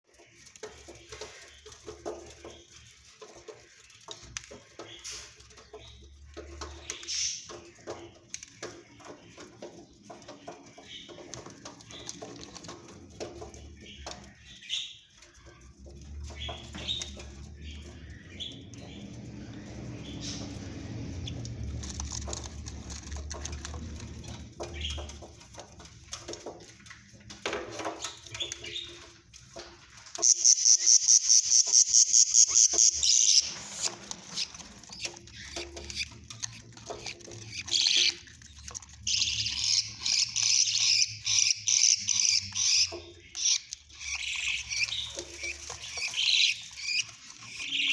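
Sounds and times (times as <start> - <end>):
rustling: 0.0 - 47.9
bird chicks calling: 0.1 - 47.9.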